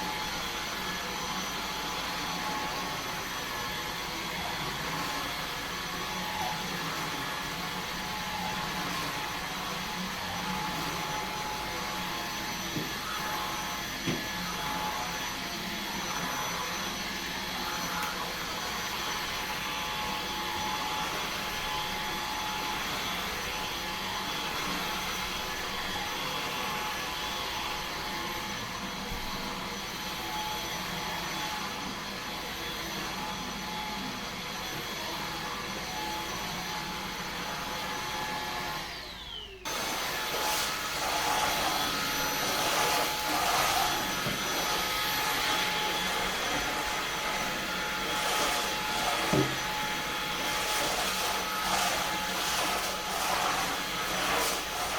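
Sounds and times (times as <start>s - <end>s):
stick vacuum running: 38.8s - 54.9s.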